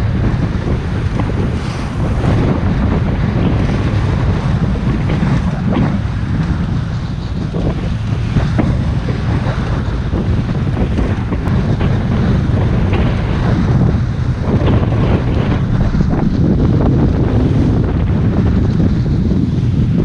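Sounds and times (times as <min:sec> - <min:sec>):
motorboat rumble: 0:00.0 - 0:20.0
water splashing against hull: 0:00.0 - 0:20.0
wind buffeting microphone: 0:00.0 - 0:20.0.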